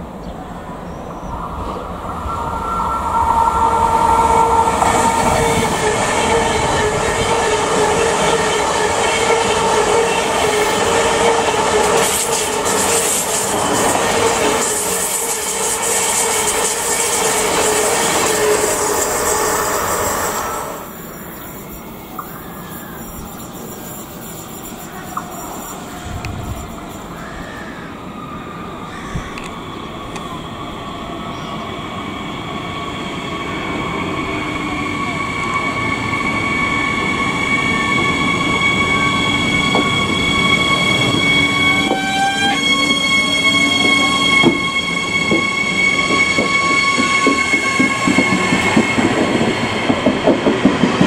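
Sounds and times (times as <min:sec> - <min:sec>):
high-speed train passing: 0:00.0 - 0:51.0
high ringing tone: 0:01.3 - 0:10.6, 0:33.0 - 0:50.0.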